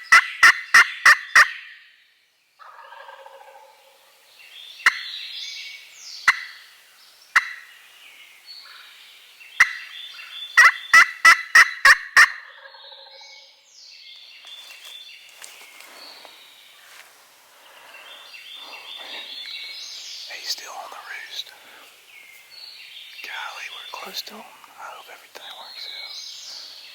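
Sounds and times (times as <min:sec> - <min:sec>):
turkey gobbling: 0:00.0 - 0:01.7, 0:02.6 - 0:04.0, 0:04.8 - 0:05.1, 0:06.3 - 0:06.6, 0:07.4 - 0:07.7, 0:09.6 - 0:09.9, 0:10.6 - 0:13.3
songbirds chorus: 0:00.0 - 0:26.9.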